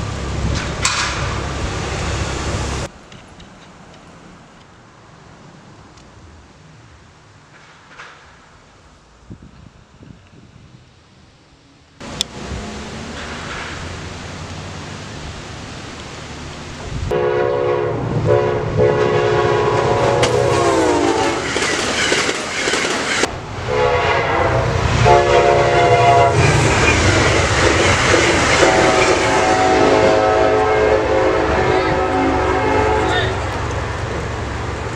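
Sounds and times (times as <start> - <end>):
train rumbling: 0.0 - 10.6, 12.0 - 34.9
train cars clattering on rails: 0.2 - 4.2, 7.4 - 8.6, 19.7 - 23.3, 26.3 - 30.3
train horn blasts: 17.1 - 21.4, 23.6 - 26.6, 28.5 - 33.4.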